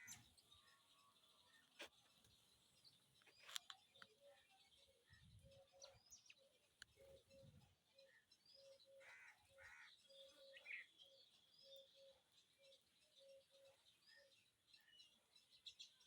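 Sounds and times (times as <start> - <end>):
sparrows chirping: 0.0 - 16.0
crow cawing: 9.0 - 10.0.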